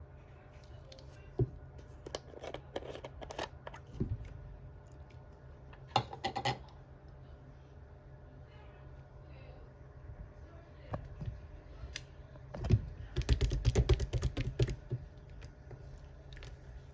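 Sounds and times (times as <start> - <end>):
faint low hum: 0.0 - 16.9.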